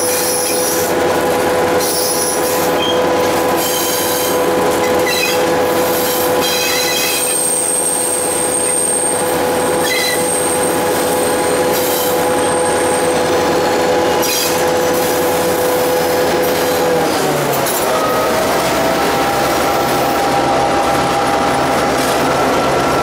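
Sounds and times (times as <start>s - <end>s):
train rolling noise: 0.0s - 23.0s
high-pitched wheel squeal: 1.8s - 13.2s, 14.2s - 14.6s.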